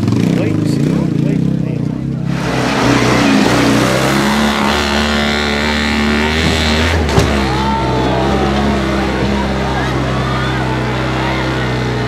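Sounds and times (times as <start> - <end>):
car engine climbing: 0.0 - 12.0.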